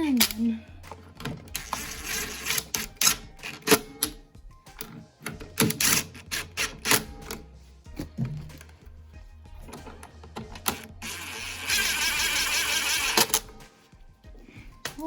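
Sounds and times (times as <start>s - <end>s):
metallic clicks of hand tools: 0.1s - 4.2s, 4.8s - 7.4s.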